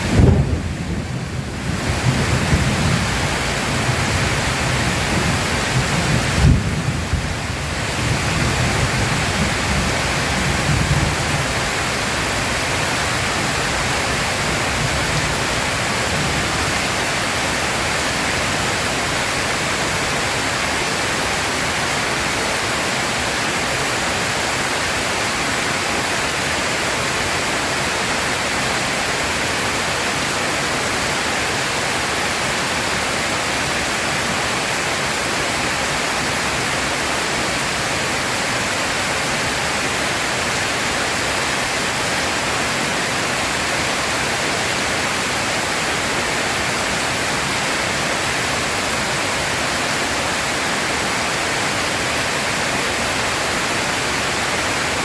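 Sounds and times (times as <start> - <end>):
thunder rumbling: 0.0 - 16.8
heavy rain falling: 0.0 - 55.0.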